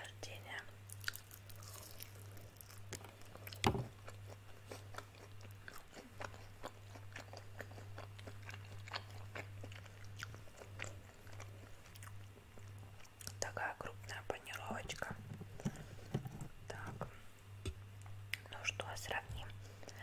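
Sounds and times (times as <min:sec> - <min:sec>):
steady low hum: 0:00.0 - 0:20.0
loud crunch of biting: 0:00.9 - 0:04.2
chewing with crunching clicks: 0:00.9 - 0:13.4.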